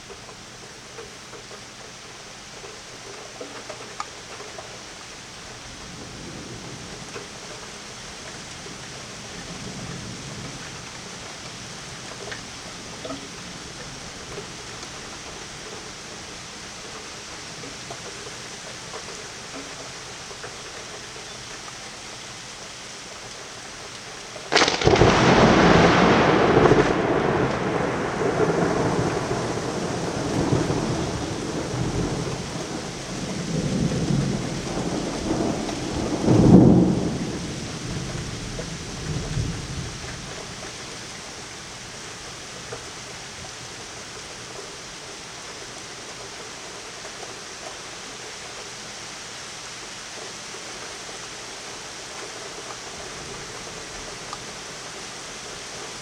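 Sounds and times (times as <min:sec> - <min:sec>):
steady rain: 0:00.0 - 0:56.0
thunder cracking and rumbling: 0:24.5 - 0:41.2.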